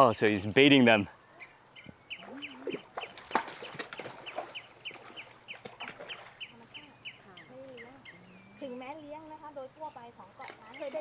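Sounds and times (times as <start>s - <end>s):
bird peeping: 1.2s - 9.2s.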